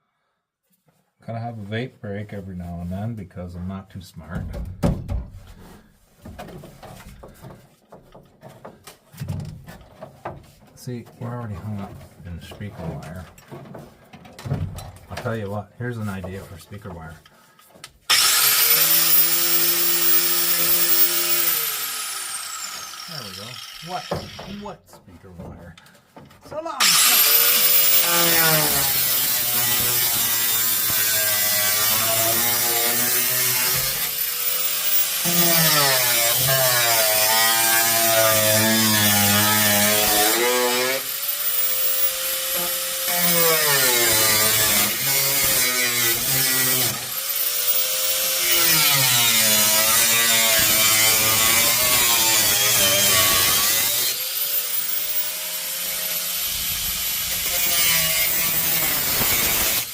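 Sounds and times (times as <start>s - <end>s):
power saw cutting sheet metal: 18.1s - 24.7s, 26.8s - 59.9s.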